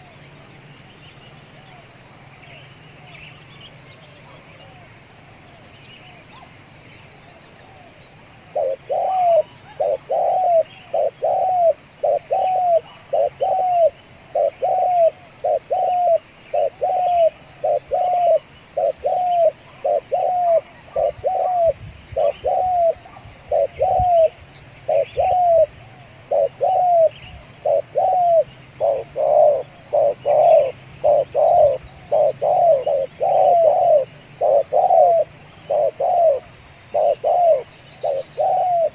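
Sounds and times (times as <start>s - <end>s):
small birds chirping: 0.0s - 4.9s, 5.5s - 38.9s
steady high hiss: 0.0s - 38.9s
dove cooing: 8.5s - 38.9s.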